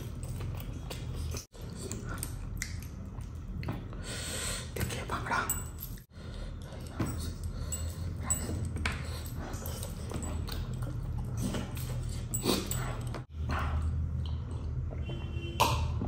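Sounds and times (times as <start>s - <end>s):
mouth clicks and lip smacks: 0.0s - 3.9s
man chewing food: 0.0s - 4.9s, 5.9s - 15.1s.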